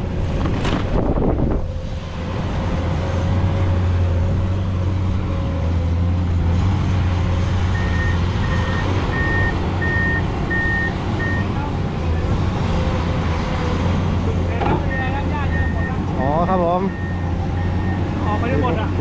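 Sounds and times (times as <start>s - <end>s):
truck diesel engine droning: 0.0s - 19.0s
truck reversing alarm beeping: 7.7s - 11.6s, 14.9s - 19.0s.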